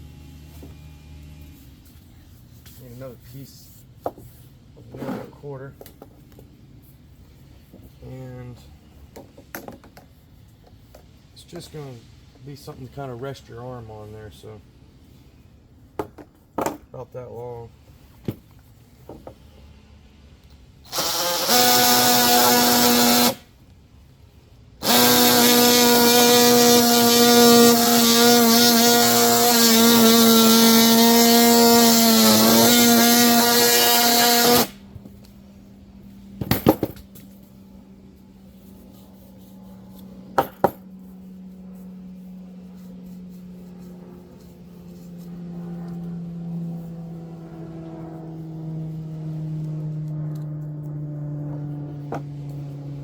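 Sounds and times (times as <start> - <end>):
power saw cutting plastic pipe: 20.8 - 23.5, 24.8 - 34.8.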